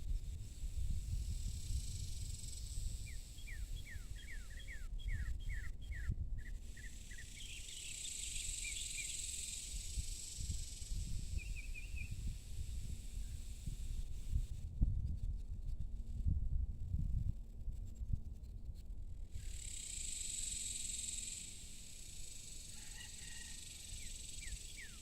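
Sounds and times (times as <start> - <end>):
high insect buzz: 0.1 - 5.6, 6.4 - 14.6, 19.3 - 25.0
songbird singing: 1.7 - 12.4, 19.4 - 25.0.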